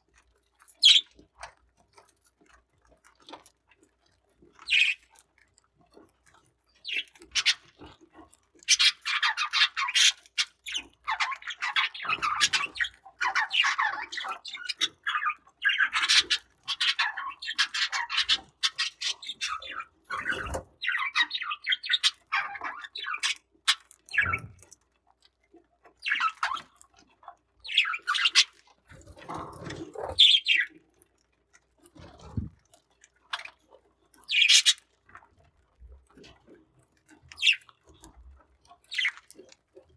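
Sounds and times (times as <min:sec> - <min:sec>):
budgerigars chirping: 0:00.8 - 0:01.0, 0:11.1 - 0:23.4, 0:24.1 - 0:24.6, 0:30.0 - 0:30.7, 0:34.3 - 0:34.8.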